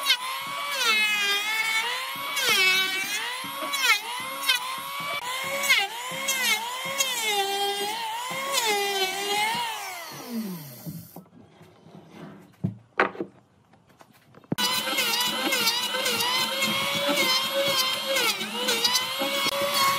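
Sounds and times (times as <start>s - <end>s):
power tool motor whining: 14.6s - 19.9s.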